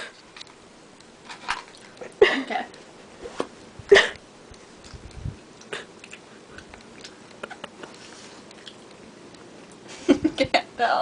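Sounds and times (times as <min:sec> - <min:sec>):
person chewing: 0:01.0 - 0:02.1, 0:04.4 - 0:09.9.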